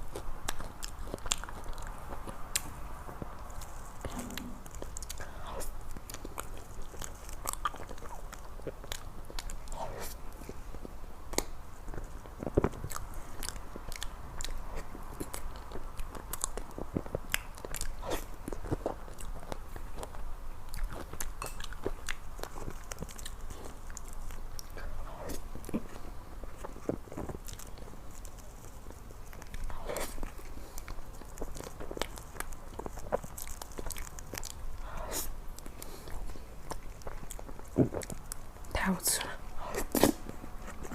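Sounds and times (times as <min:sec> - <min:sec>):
person chewing: 0:00.0 - 0:38.6, 0:39.5 - 0:40.9.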